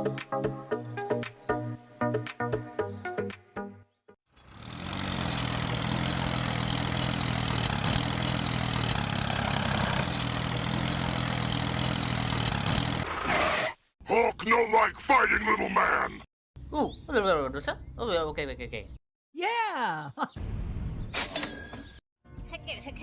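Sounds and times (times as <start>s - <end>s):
engine idling: 4.3s - 13.0s.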